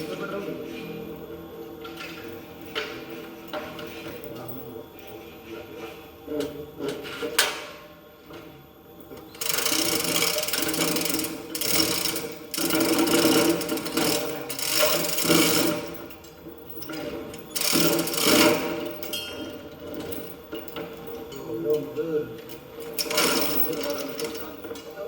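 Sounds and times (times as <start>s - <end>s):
fast mechanical rattling: 9.4s - 16.1s, 17.4s - 19.2s, 22.9s - 24.6s.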